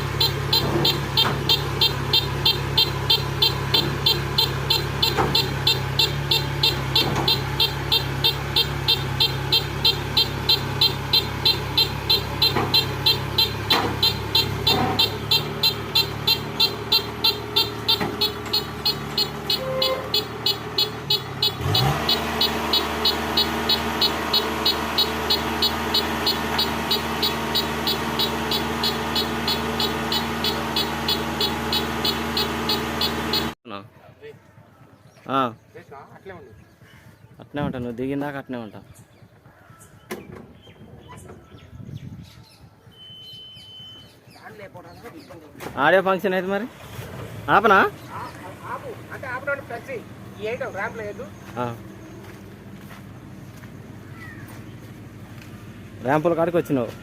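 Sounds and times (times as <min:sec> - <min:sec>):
combine harvester engine running: 0:00.0 - 0:33.6, 0:48.3 - 0:57.0
rapid even beeping: 0:00.0 - 0:33.6.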